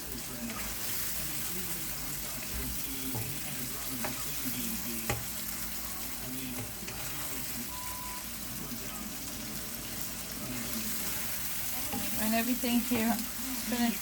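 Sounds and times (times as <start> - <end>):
food sizzling in a pot: 0.0 - 14.0.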